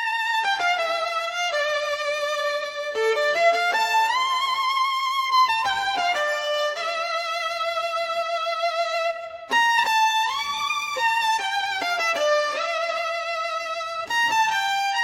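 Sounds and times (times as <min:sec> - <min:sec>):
solo violin melody: 0:00.0 - 0:15.0.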